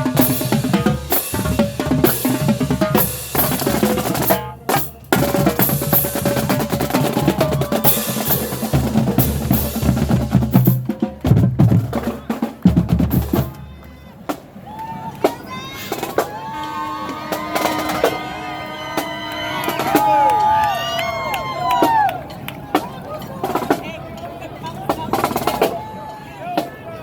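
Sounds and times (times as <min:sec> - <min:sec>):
snare drum rolls: 0:00.0 - 0:14.5
horns holding notes: 0:00.0 - 0:27.0.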